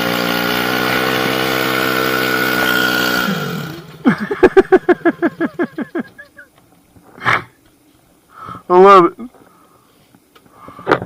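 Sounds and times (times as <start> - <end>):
pit bike engine at steady revs: 0.0 - 6.2
short laughs: 4.0 - 6.6.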